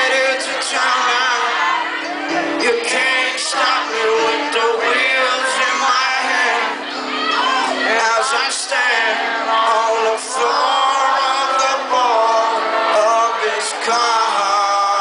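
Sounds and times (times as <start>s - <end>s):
live band instrumental music: 0.0s - 15.0s.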